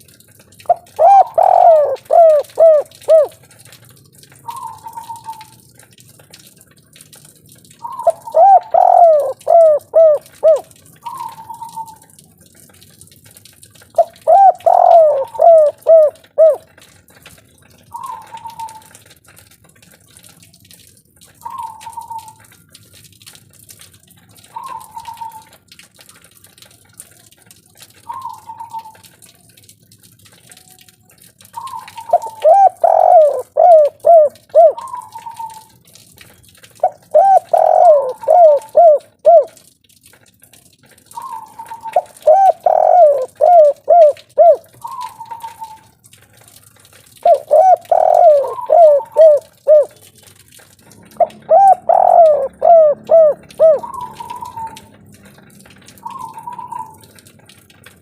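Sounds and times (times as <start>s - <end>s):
dove cooing: 0.7s - 3.4s, 4.5s - 5.5s, 7.8s - 12.0s, 14.0s - 16.8s, 31.6s - 35.6s, 36.8s - 39.6s, 41.2s - 45.8s, 47.2s - 50.0s, 51.1s - 55.0s, 56.0s - 57.1s.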